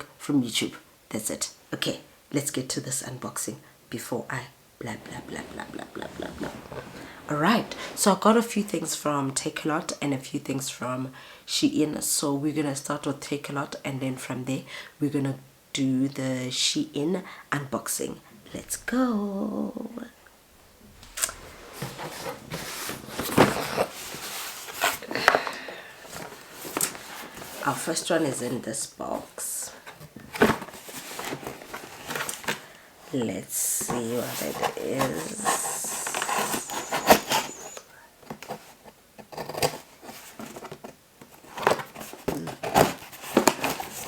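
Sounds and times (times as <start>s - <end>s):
packaging rustling: 4.9s - 8.2s, 20.2s - 28.1s, 33.8s - 44.0s
cardboard box scraping and tapping: 21.2s - 25.4s, 33.9s - 44.0s.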